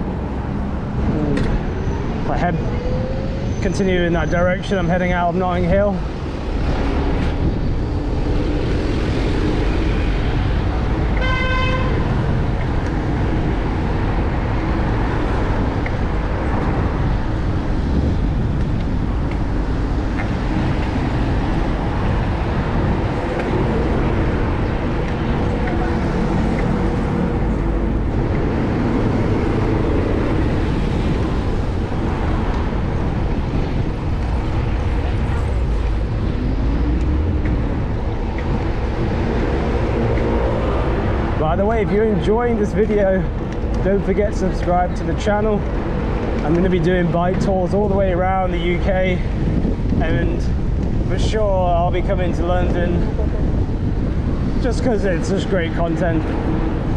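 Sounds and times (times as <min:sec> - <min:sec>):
city street traffic: 0:00.0 - 0:56.9
vehicle horn tooting: 0:11.2 - 0:12.1.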